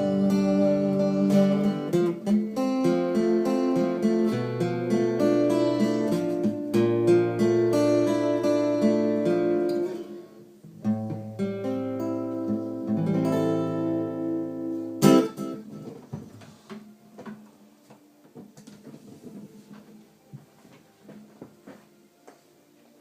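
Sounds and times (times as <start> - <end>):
acoustic guitar chords: 0.0 - 16.3.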